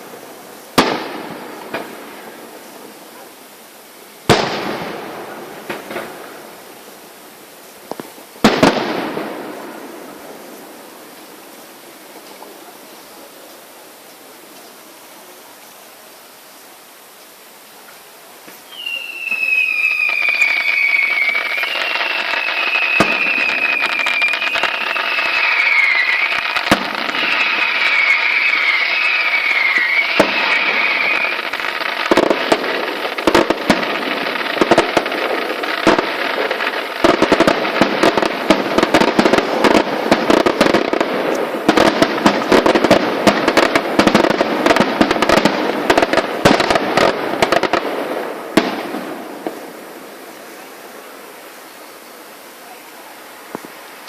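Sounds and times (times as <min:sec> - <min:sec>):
fireworks bangs and crackling: 0:00.0 - 0:13.5, 0:18.4 - 0:53.9
firework whistle: 0:18.5 - 0:47.8.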